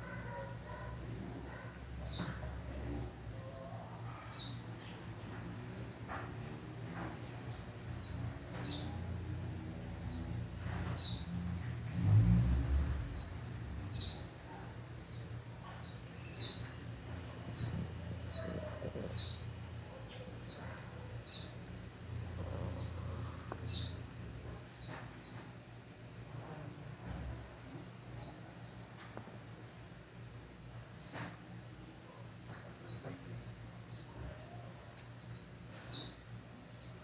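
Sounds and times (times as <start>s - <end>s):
stomach growling: 17.7s - 19.4s.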